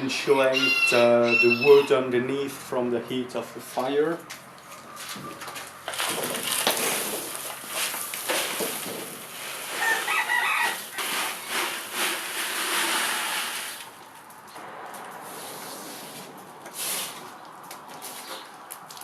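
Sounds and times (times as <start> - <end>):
sand and gravel scraping: 4.7 - 19.0.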